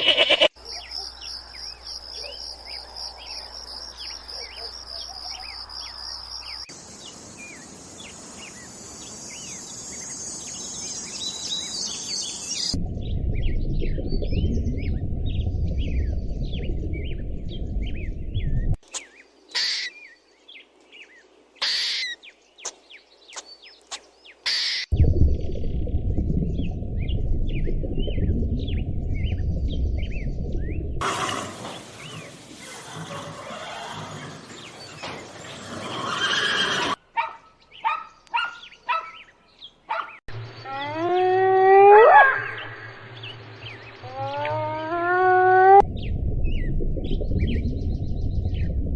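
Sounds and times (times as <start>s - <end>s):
small birds chirping: 0.6s - 12.8s, 14.2s - 24.9s, 37.2s - 41.2s
steady low rumble: 12.8s - 18.8s, 24.9s - 31.0s, 45.8s - 48.9s.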